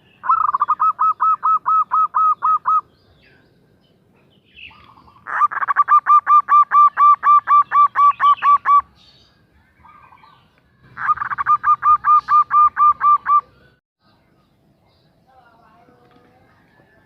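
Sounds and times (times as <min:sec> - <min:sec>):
dove calling: 0:00.0 - 0:03.4, 0:04.2 - 0:09.1, 0:09.8 - 0:13.8.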